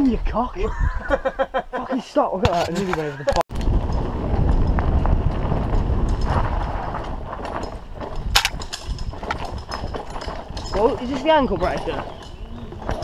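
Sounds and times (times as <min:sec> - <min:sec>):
mountain bike rattling and knocking: 0:02.4 - 0:13.0
tyre rumble: 0:02.4 - 0:13.0
wind on microphone: 0:03.5 - 0:13.0
sharp clack: 0:08.3 - 0:08.9.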